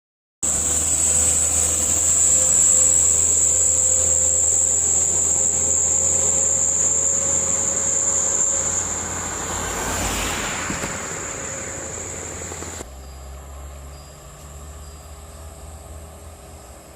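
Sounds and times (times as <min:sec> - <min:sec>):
vehicle passing: 0:00.4 - 0:13.9
diesel trucks labouring uphill: 0:00.4 - 0:16.9
high engine whine: 0:00.4 - 0:16.9.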